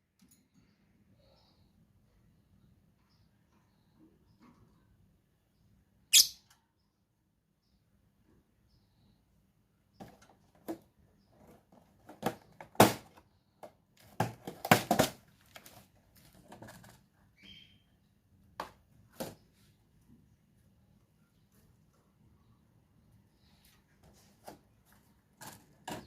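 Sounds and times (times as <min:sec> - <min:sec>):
short high chirp: 0:06.1 - 0:06.4.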